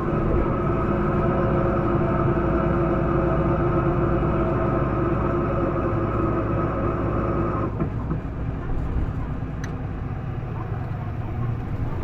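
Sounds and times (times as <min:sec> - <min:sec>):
bus diesel engine revving: 0:00.0 - 0:07.9
engine whine: 0:00.0 - 0:12.0.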